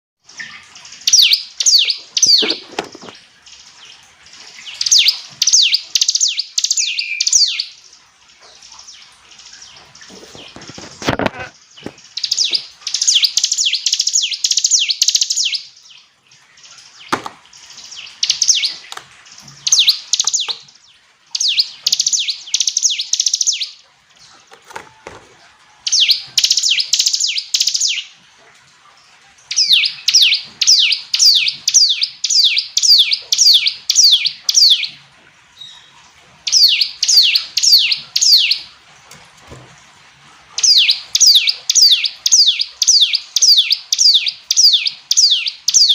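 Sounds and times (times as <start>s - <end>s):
bird singing high sharp chirps: 1.0s - 2.6s, 4.7s - 7.8s, 25.9s - 28.1s, 29.5s - 35.0s, 36.5s - 38.7s, 40.6s - 45.9s.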